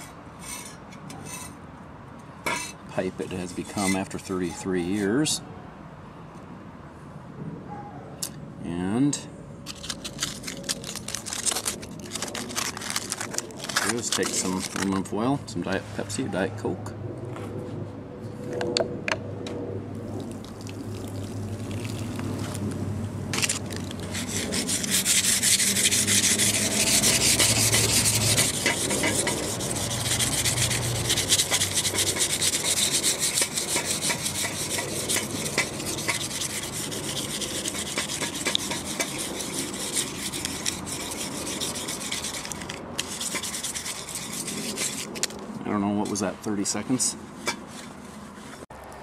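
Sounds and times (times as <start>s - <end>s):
foil scrubbing metal pipe: 3.1s - 5.2s, 9.7s - 15.1s, 23.3s - 45.3s.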